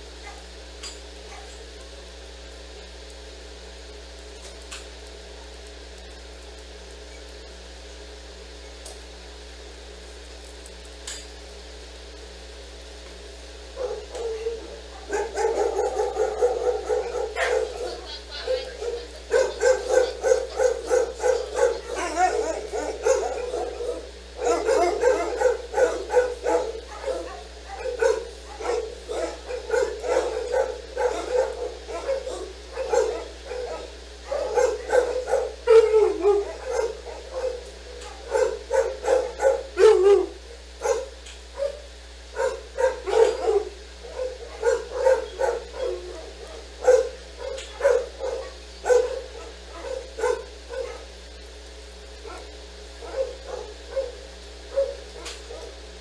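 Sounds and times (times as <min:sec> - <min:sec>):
dog barking rapidly: 0:00.2 - 0:00.6, 0:01.3 - 0:01.8, 0:13.7 - 0:51.3, 0:52.2 - 0:55.8
dog whining: 0:13.8 - 0:41.8, 0:42.4 - 0:51.1, 0:52.2 - 0:55.8.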